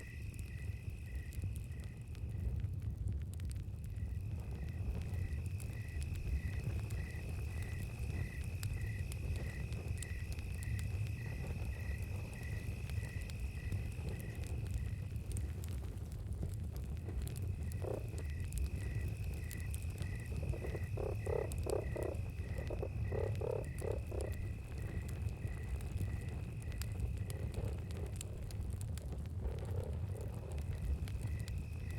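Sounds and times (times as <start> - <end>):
campfire crackling: 0.0 - 31.9
crickets chirping: 0.0 - 31.9
high insect drone: 4.0 - 15.2, 17.0 - 28.2, 29.4 - 31.9
frog croaking: 17.6 - 25.0.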